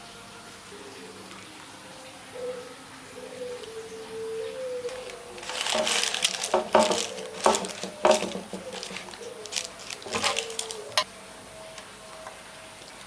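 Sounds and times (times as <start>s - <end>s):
crinkling rustle: 4.8s - 11.1s.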